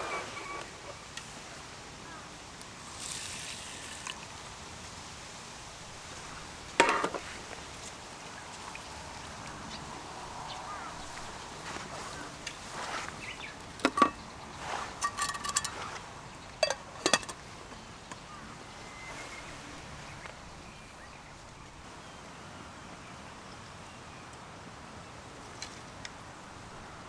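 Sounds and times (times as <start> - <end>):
metal cooking gear clinking: 15.0 - 15.8, 16.6 - 17.4.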